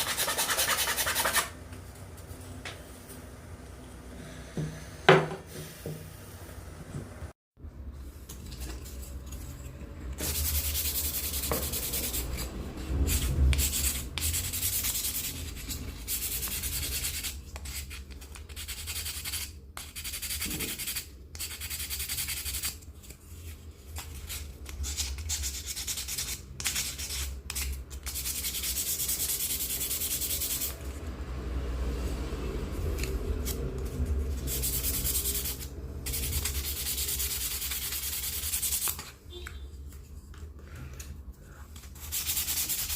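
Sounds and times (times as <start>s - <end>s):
wood being sanded: 0.0s - 1.5s.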